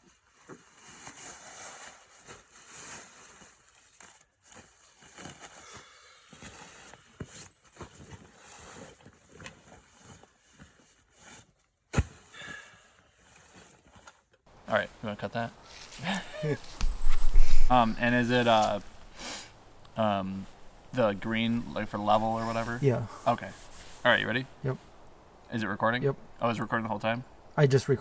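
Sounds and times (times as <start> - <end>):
rustling and crackling: 13.6 - 27.4.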